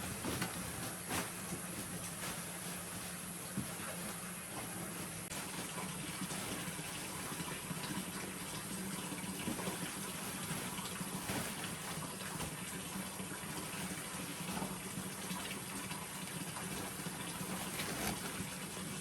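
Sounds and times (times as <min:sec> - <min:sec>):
water pouring and splashing: 0:00.0 - 0:19.0.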